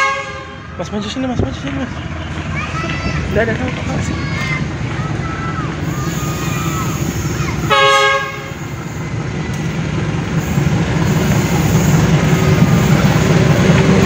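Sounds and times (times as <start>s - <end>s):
locomotive horn blast: 0.0s - 0.7s, 7.7s - 8.6s
locomotive engine rumble: 0.0s - 14.0s.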